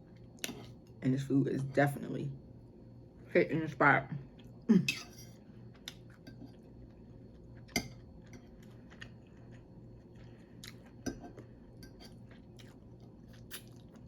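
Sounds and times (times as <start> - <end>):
faint low hum: 0.0 - 14.0
person chewing: 5.7 - 14.0.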